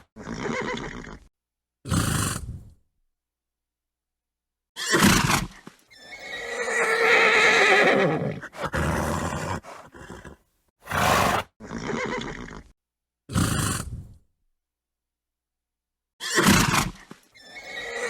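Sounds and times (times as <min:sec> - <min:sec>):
horse whinnying: 0:04.8 - 0:12.7, 0:16.2 - 0:18.0
horse snorting: 0:08.0 - 0:12.7.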